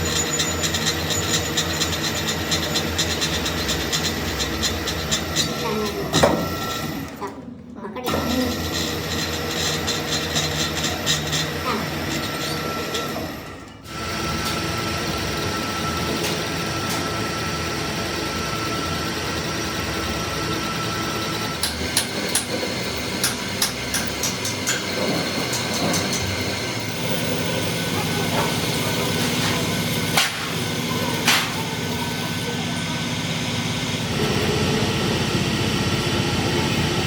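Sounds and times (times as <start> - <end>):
workshop machinery running: 0.0 - 37.0
sharp metallic clicks and knocks: 21.6 - 26.5.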